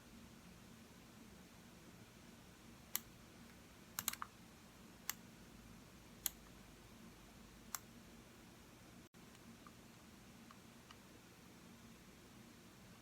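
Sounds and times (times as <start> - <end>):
computer mouse clicking: 4.0 - 4.3, 5.0 - 5.2, 6.2 - 6.5.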